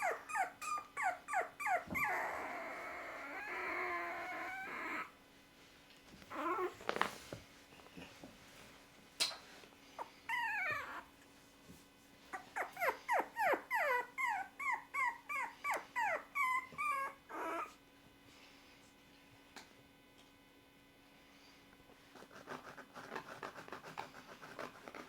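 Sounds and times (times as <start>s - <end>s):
puppy whimpering: 0.0s - 5.2s, 6.3s - 7.0s, 10.0s - 11.2s, 12.3s - 17.8s.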